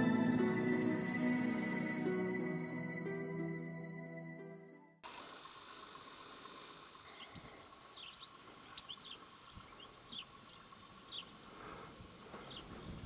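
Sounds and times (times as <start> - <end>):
small birds chirping: 7.0 - 13.0.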